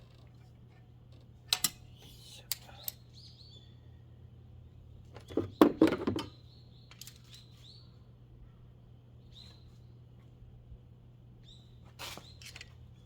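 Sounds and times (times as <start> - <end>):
small birds chirping: 1.9 - 10.1, 11.4 - 13.0
clatter of sharp knocks: 5.2 - 6.3.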